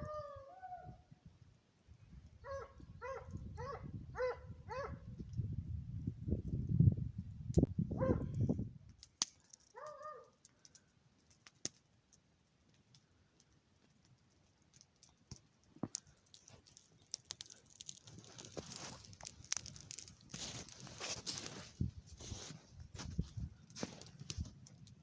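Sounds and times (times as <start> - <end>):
footsteps crunching in snow: 18.0 - 24.6.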